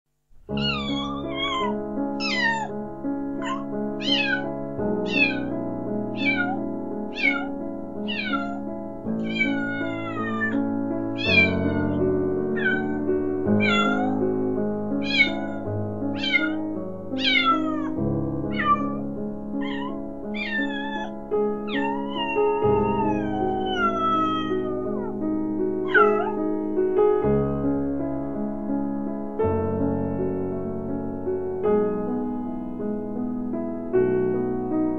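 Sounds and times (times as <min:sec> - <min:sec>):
kitten meowing: 0:00.5 - 0:02.7, 0:03.4 - 0:05.6, 0:06.2 - 0:08.6, 0:09.2 - 0:10.6, 0:11.2 - 0:14.2, 0:15.0 - 0:19.0, 0:19.6 - 0:25.1, 0:25.8 - 0:26.4.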